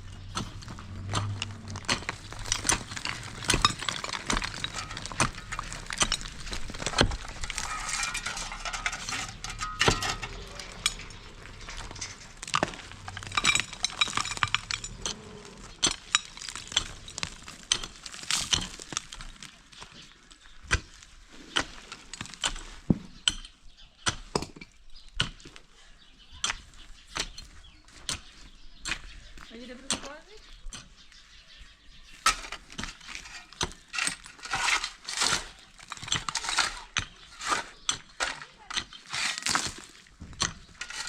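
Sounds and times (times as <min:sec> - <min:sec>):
hard objects clinking together: 0:00.0 - 0:19.2, 0:32.2 - 0:41.0.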